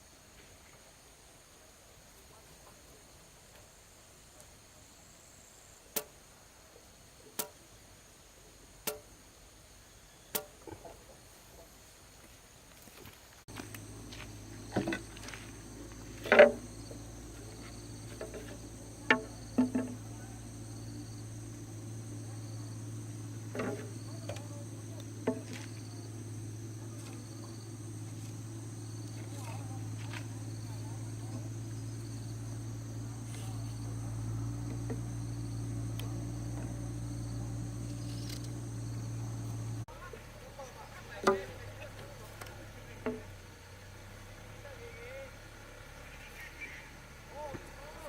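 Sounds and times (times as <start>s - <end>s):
high-pitched insect chorus: 0.0s - 48.0s
hand tool striking wood: 13.5s - 20.2s, 23.4s - 25.9s, 41.2s - 41.6s
short knocks: 13.5s - 20.5s, 22.9s - 30.4s.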